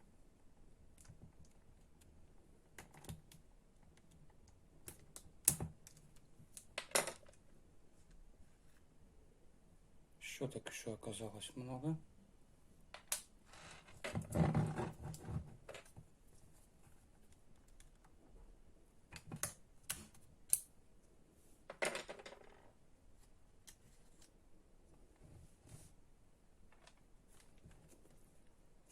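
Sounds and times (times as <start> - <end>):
small parts clicking and clattering: 3.9 - 7.5.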